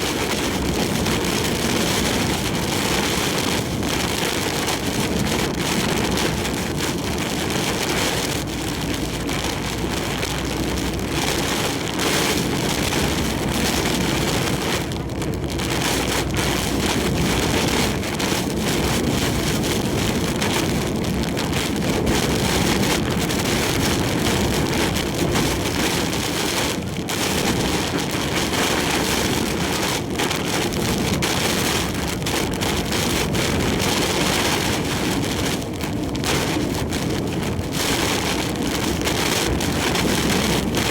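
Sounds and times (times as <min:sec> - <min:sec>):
heavy rain beating on truck: 0:00.0 - 0:40.9
wind: 0:00.0 - 0:40.9.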